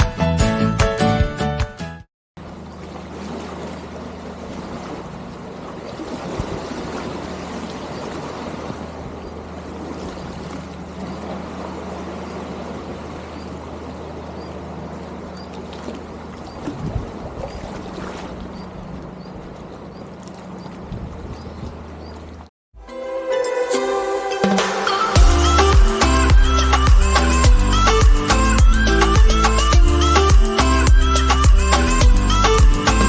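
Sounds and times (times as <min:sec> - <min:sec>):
boat engine droning: 0:02.4 - 0:33.0
water washing against shore: 0:02.5 - 0:22.5.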